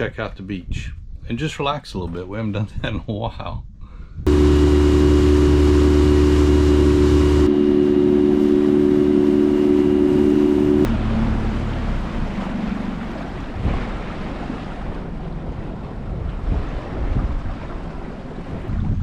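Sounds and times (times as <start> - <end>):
boat motor humming: 4.3 - 18.5
water washing: 4.3 - 18.6
wind on microphone: 13.5 - 19.0.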